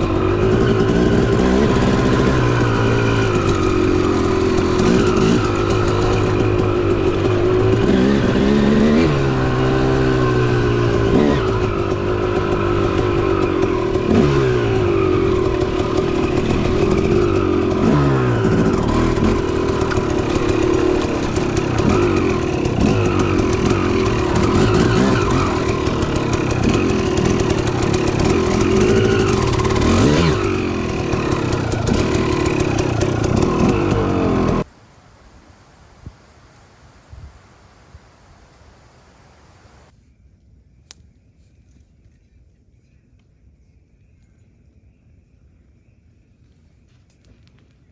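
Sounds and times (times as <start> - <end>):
dirt bike engine revving: 0.0 - 34.8.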